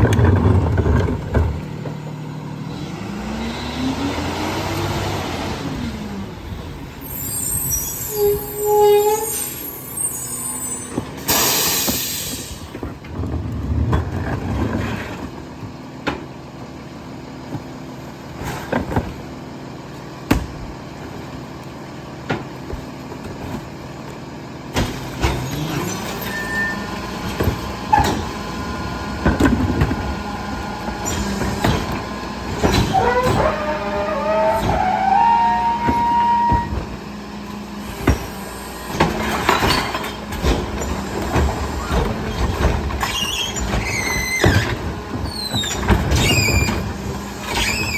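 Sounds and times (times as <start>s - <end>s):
metal squealing: 7.0s - 12.6s, 25.2s - 28.7s, 30.2s - 37.1s, 40.8s - 47.9s
truck engine running: 9.6s - 47.9s
metal clanks and bangs: 27.0s - 37.1s.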